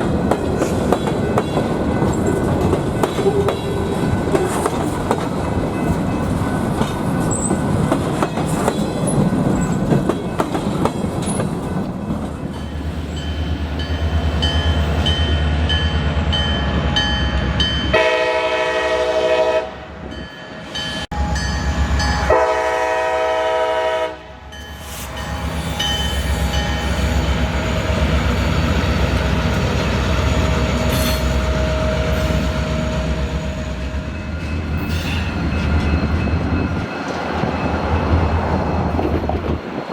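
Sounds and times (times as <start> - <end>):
diesel locomotives rumbling: 0.0 - 39.9
crossing bell dinging: 5.3 - 18.4, 24.5 - 28.1
multi-chime train horn blasts: 16.5 - 20.3, 21.0 - 28.1.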